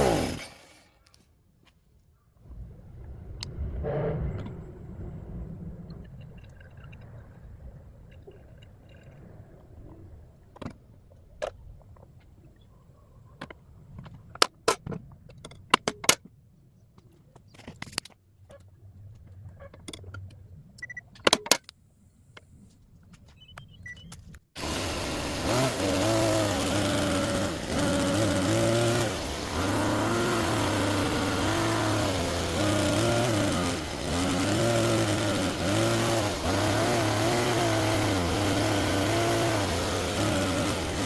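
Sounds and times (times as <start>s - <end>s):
low scraping rumble: 2.4s - 10.5s
sharp clicks and knocks: 13.4s - 16.3s.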